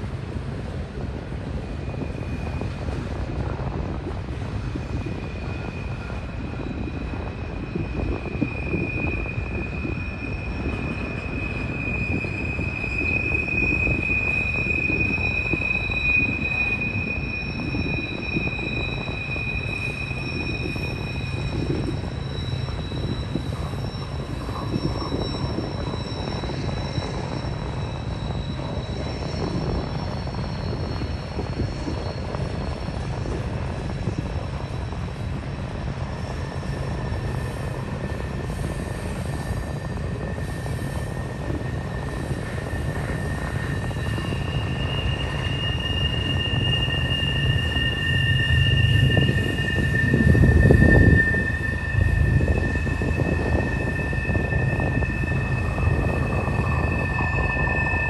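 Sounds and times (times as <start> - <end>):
train wheels rumbling on rail: 0.0 - 58.0
wheel flanges squealing: 1.6 - 58.0.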